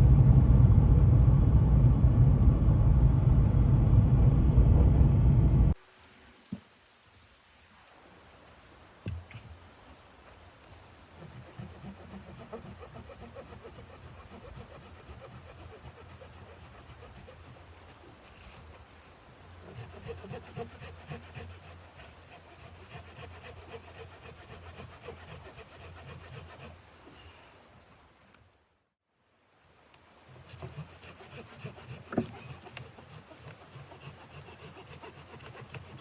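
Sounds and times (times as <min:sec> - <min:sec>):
hand saw cutting wood: 0:11.1 - 0:27.3, 0:30.3 - 0:36.0.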